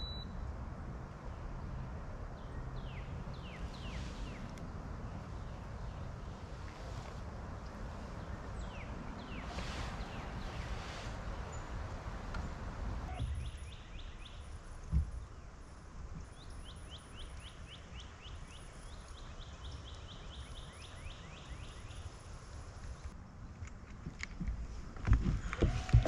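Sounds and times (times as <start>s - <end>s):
wind: 0.0s - 26.0s
thump: 14.9s - 15.1s.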